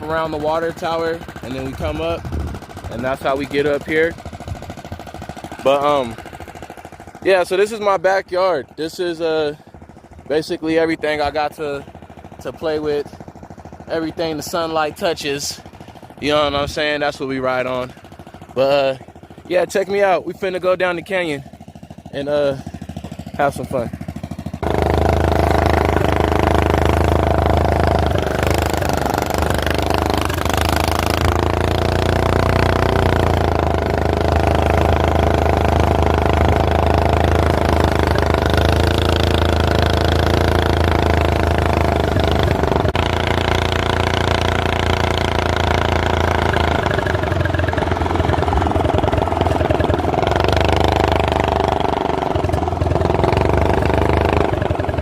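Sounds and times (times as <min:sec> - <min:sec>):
go-kart engine running: 0:00.0 - 0:55.0.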